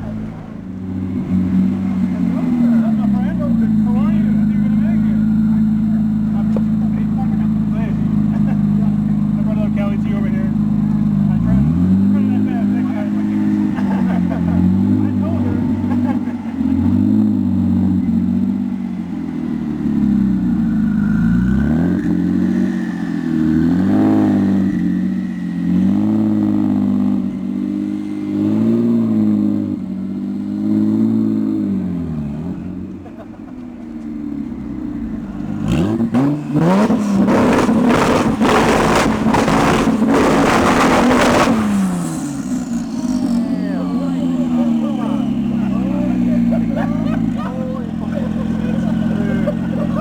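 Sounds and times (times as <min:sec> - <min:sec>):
car engine revving: 0:00.0 - 0:50.0
exhaust pops and cracks: 0:06.4 - 0:08.6, 0:35.4 - 0:43.4.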